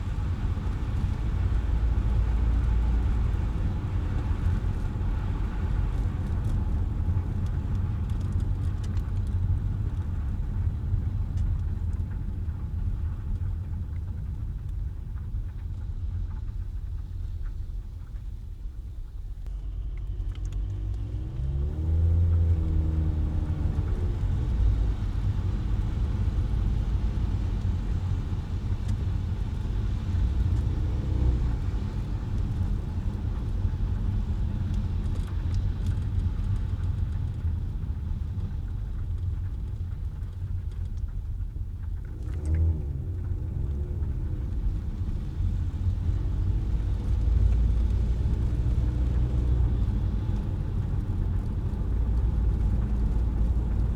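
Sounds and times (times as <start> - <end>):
car engine and tyres rumbling: 0.0 - 53.9.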